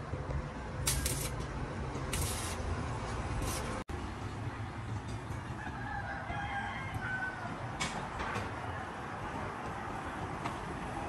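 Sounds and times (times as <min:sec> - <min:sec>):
short scraping hisses: 0:00.9 - 0:01.4, 0:02.1 - 0:02.6, 0:03.4 - 0:03.8.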